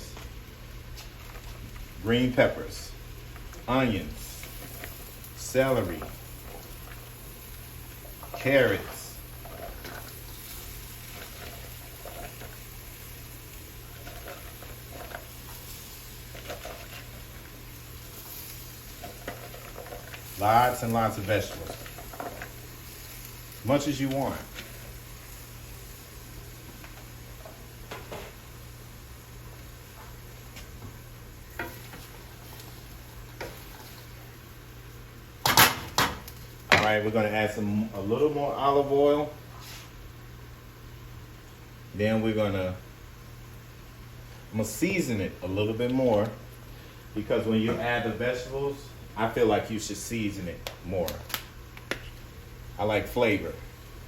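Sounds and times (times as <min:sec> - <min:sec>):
constant low hum: 0:00.0 - 0:54.0
vegetables sizzling in a pot: 0:00.0 - 0:54.0
stirring scrapes and clicks: 0:08.1 - 0:10.3, 0:11.0 - 0:12.7, 0:13.9 - 0:15.6, 0:16.2 - 0:17.5, 0:18.9 - 0:20.4, 0:21.1 - 0:22.6.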